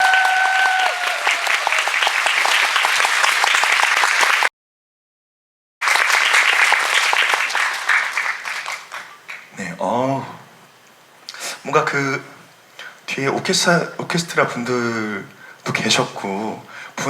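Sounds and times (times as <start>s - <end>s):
audience applauding: 0.0s - 4.5s, 5.8s - 9.5s.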